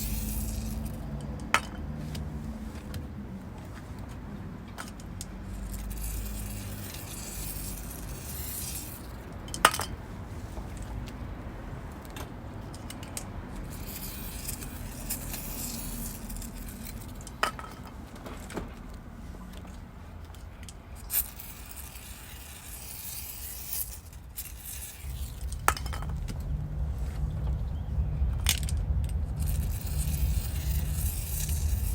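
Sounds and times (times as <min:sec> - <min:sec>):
low steady rumble: 0:00.0 - 0:03.9, 0:05.2 - 0:18.2, 0:18.8 - 0:31.9.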